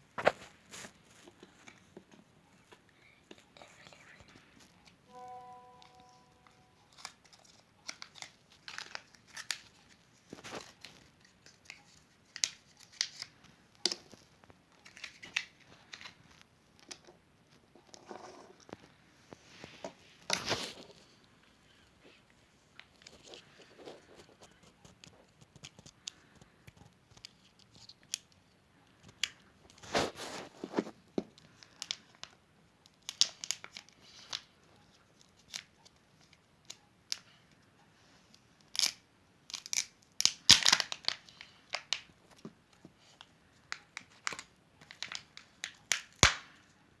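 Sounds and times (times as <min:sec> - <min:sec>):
wrapper tearing and crinkling: 0:06.8 - 0:13.3, 0:38.7 - 0:41.9.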